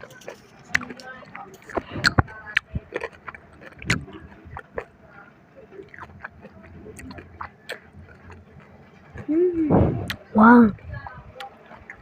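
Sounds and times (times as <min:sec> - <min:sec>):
mouth chewing crunchy food: 0:00.0 - 0:05.0, 0:05.8 - 0:10.3.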